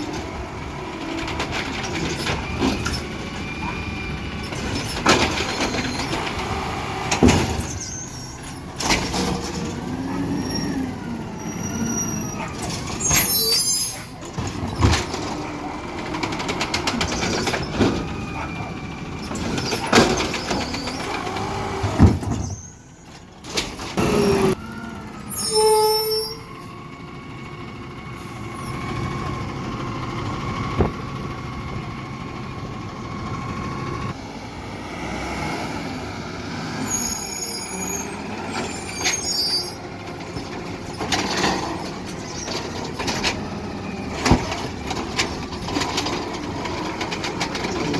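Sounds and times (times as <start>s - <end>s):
garbage truck engine running: 0.0s - 34.8s, 35.7s - 47.9s
metal clanks and bangs: 4.4s - 10.0s, 12.4s - 20.9s, 40.0s - 47.9s
short high squeal: 7.6s - 8.6s, 11.4s - 14.2s, 25.3s - 26.6s, 36.8s - 39.8s.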